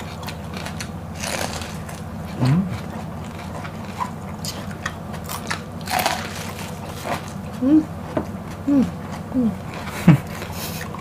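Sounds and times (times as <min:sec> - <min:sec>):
crunchy chewing: 0:00.0 - 0:11.0
person humming: 0:02.4 - 0:02.8, 0:07.6 - 0:07.9, 0:08.6 - 0:10.2.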